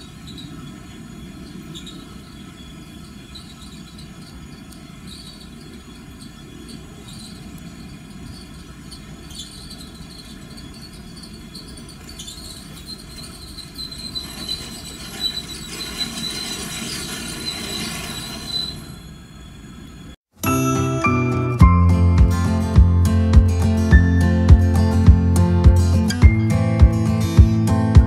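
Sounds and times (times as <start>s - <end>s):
brake squeal: 0.0s - 20.2s
train low rumble: 21.6s - 28.0s.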